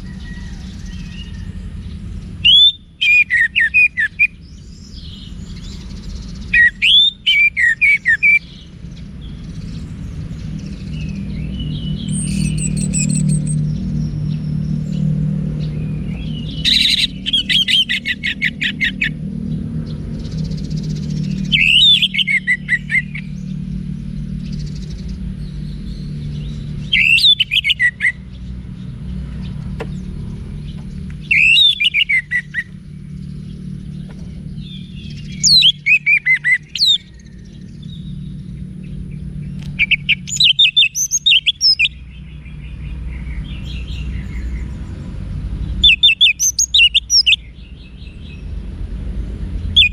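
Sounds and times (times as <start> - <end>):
steady low hum: 0.0 - 49.9
thrush singing: 29.2 - 33.9.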